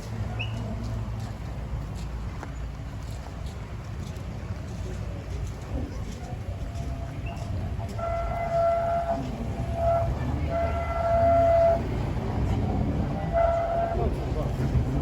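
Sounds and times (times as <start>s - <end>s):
low rumble of train: 0.0s - 15.0s
steam locomotive whistle: 7.3s - 12.1s, 13.1s - 14.2s.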